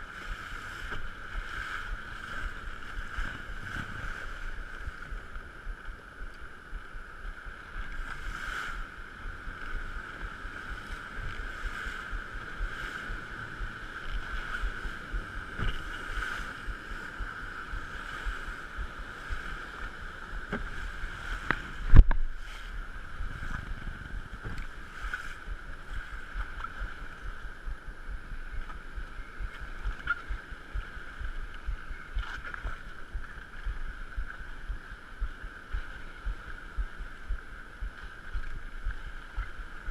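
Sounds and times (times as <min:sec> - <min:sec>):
boat engine droning: 0:00.0 - 0:39.9
wind buffeting microphone: 0:00.0 - 0:39.9.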